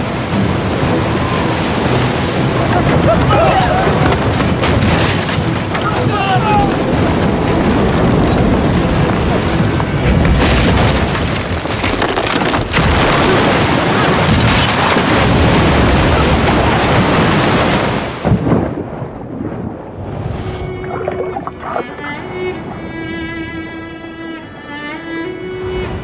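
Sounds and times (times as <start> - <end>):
crashing waves: 0.0 - 11.7, 12.7 - 23.3
rushing wind: 5.4 - 11.8, 13.2 - 24.6.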